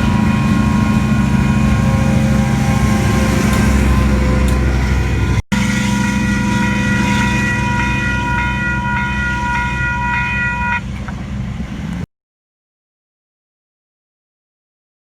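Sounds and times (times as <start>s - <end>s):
locomotive chord horn blast: 0.0s - 11.0s
diesel engine running: 0.0s - 12.0s.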